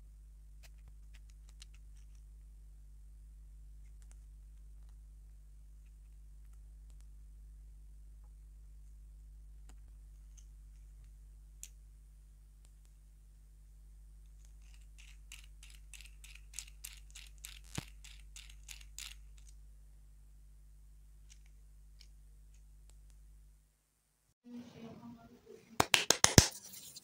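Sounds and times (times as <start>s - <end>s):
faint steady hum: 0.0s - 25.8s
plastic toy parts clicking: 14.4s - 19.6s.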